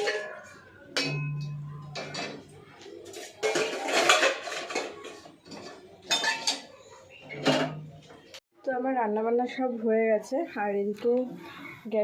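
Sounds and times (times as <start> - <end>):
pots and pans clattering: 0.0 - 8.2.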